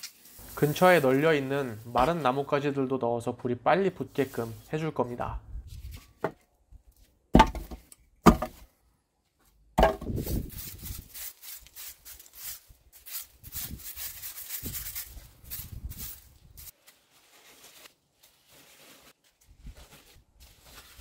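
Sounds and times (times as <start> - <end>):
firewood knocking and scraping: 7.3 - 8.7, 9.8 - 10.4
dry branches crackling: 10.2 - 21.0.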